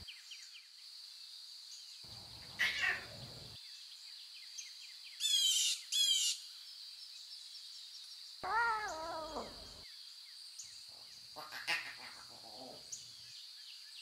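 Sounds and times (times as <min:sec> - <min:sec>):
birds chirping: 0:02.0 - 0:03.8, 0:08.4 - 0:09.8.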